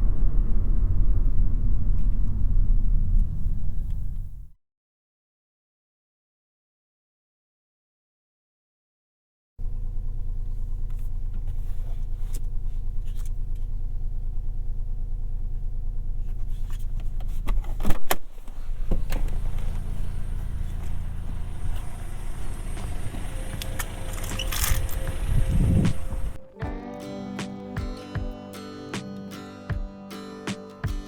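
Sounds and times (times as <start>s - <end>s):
car engine humming: 9.6s - 31.0s.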